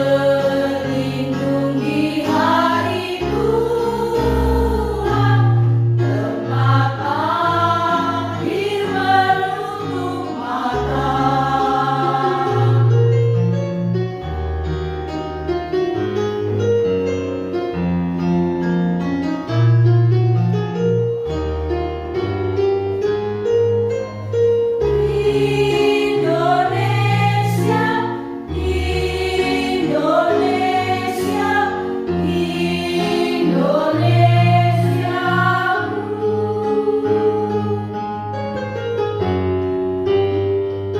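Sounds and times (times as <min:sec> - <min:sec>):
choir singing: 0:00.0 - 0:13.1, 0:24.9 - 0:38.3
instrumental accompaniment: 0:00.0 - 0:40.9.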